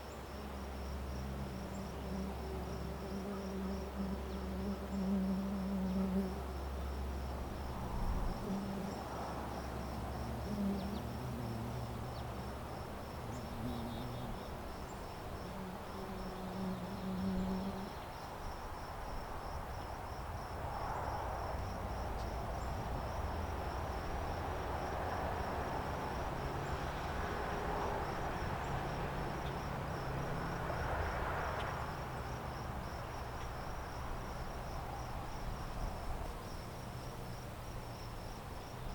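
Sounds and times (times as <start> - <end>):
low buzzing drone: 0.0 - 18.1
crickets chirping: 0.0 - 38.9.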